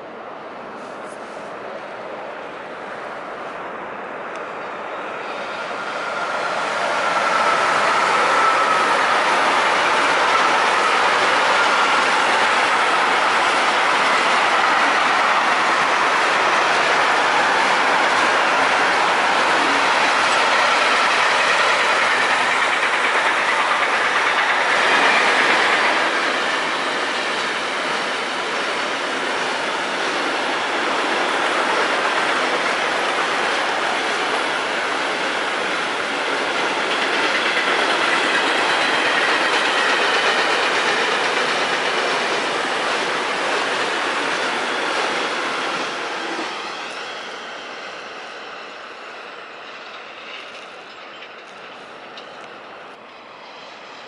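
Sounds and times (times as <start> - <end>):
freight train rolling past: 0.0 - 54.0
wheels clacking over rail joints: 6.8 - 28.1, 31.1 - 45.8.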